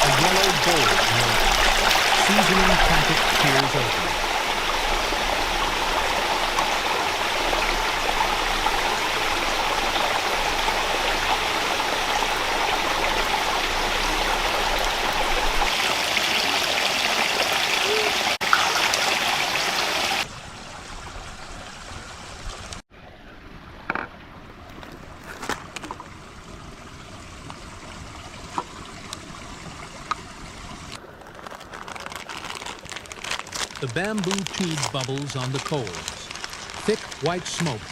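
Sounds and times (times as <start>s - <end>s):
stream rushing over rocks: 0.0s - 20.4s, 34.0s - 37.9s
faint running water: 0.0s - 31.4s.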